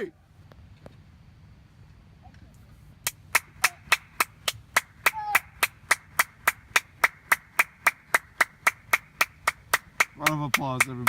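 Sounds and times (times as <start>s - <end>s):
person clapping hands: 3.1s - 11.0s.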